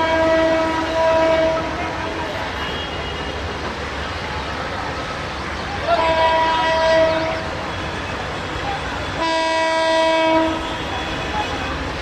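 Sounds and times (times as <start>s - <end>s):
train horn blasts: 0.0s - 3.5s, 5.8s - 8.1s, 9.0s - 12.0s
train running noise: 0.0s - 12.0s.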